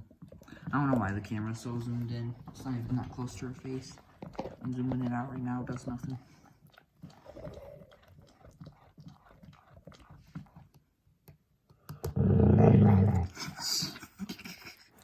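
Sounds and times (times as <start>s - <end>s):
dog growling: 7.0s - 9.7s, 12.1s - 13.6s.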